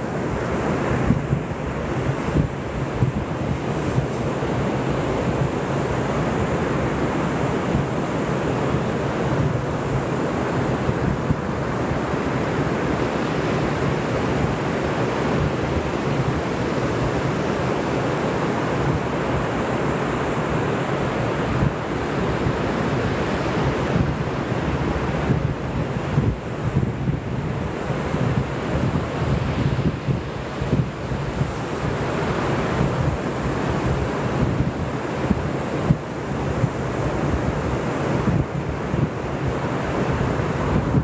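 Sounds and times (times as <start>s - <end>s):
ocean surf rushing: 0.0s - 41.0s
wind buffeting microphone: 0.2s - 8.0s, 20.8s - 41.0s.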